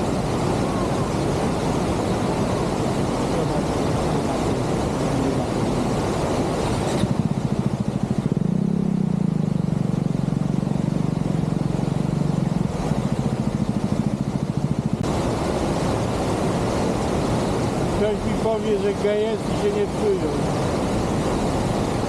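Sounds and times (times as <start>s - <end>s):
motorcycle engine running: 1.2s - 15.0s.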